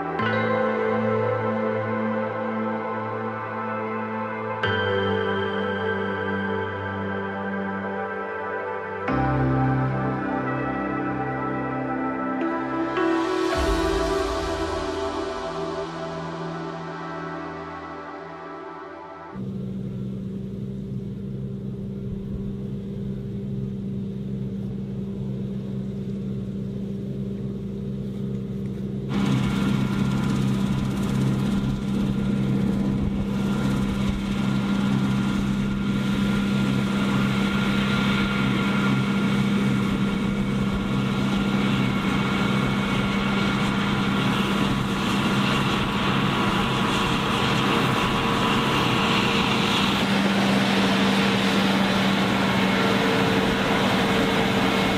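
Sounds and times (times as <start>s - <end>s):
diesel engine running: 19.4s - 54.9s.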